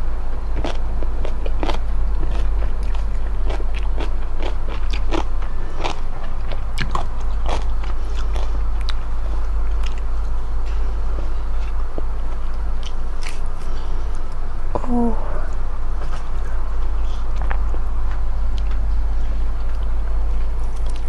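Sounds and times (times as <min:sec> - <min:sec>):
low hum: 0:00.0 - 0:21.0
chewing with mouth clicks: 0:00.6 - 0:09.0.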